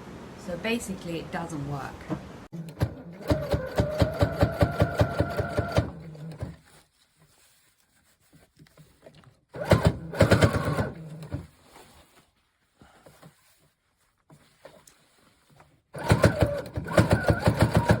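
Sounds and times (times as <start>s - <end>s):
sewing machine running: 2.6s - 6.6s, 9.6s - 11.5s, 16.0s - 18.0s.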